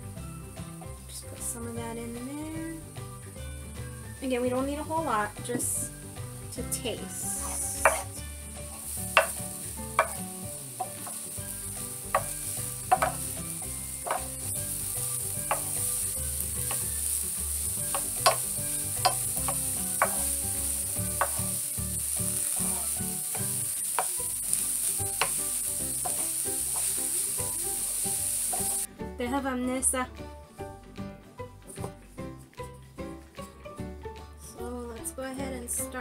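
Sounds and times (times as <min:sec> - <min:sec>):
food sizzling in a skillet: 0:01.6 - 0:28.9
wooden spatula scraping: 0:07.2 - 0:09.4, 0:12.0 - 0:21.6
spatula tapping the pan: 0:07.8 - 0:08.1, 0:09.1 - 0:11.3, 0:12.0 - 0:21.6, 0:23.2 - 0:24.3, 0:24.9 - 0:27.0, 0:28.5 - 0:28.8.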